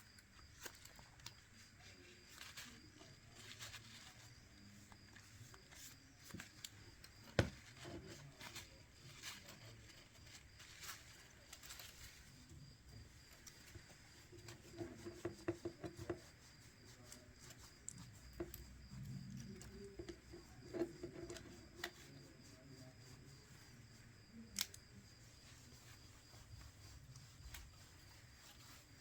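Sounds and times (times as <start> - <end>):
small tools clicking and tapping: 17.8 - 22.0, 24.5 - 24.8.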